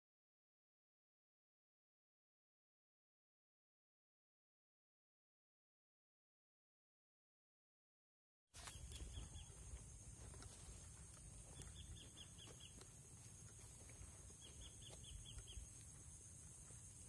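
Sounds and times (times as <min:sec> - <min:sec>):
bird chirping: 0:08.6 - 0:17.0.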